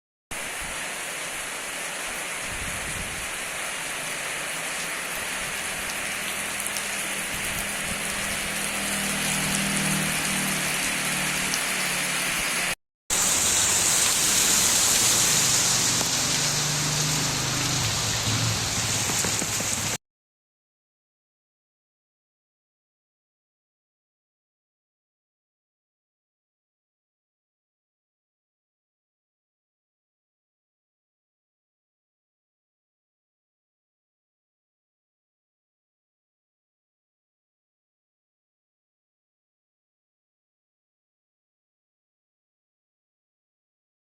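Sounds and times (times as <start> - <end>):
steady rain hiss: 0.4 - 20.0.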